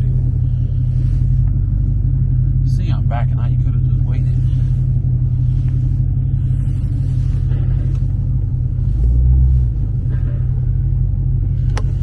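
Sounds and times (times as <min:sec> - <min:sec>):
car engine and exhaust rumbling: 0:00.0 - 0:12.0.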